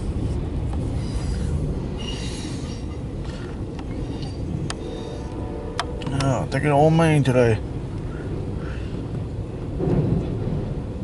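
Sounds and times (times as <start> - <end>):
train wheels rumbling on rail: 0.0 - 11.0
high wheel squeals: 1.0 - 5.4.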